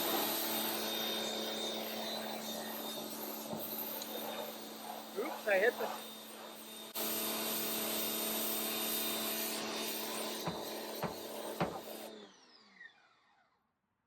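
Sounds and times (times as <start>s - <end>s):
motor winding down whine: 9.1s - 13.8s.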